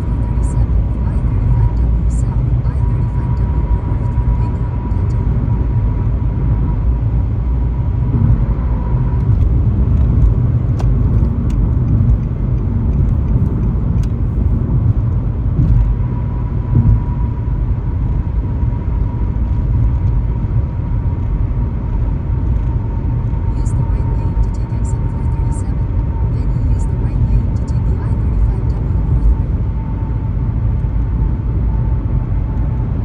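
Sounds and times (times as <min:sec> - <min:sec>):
tyre and engine rumble: 0:00.0 - 0:33.0.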